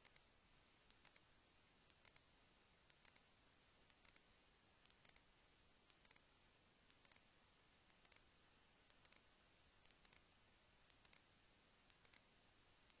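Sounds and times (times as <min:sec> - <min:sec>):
faint sharp clicks: 0:00.0 - 0:00.3, 0:00.9 - 0:01.3, 0:01.9 - 0:02.3, 0:02.9 - 0:03.3, 0:03.9 - 0:06.3, 0:06.9 - 0:07.3, 0:07.9 - 0:08.3, 0:08.9 - 0:10.3, 0:10.9 - 0:11.3, 0:11.9 - 0:12.3.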